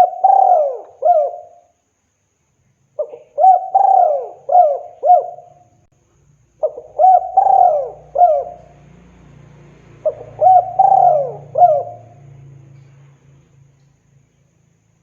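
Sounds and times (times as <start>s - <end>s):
dove cooing: 0.0s - 1.7s, 3.0s - 5.7s, 6.6s - 8.8s, 10.0s - 12.3s.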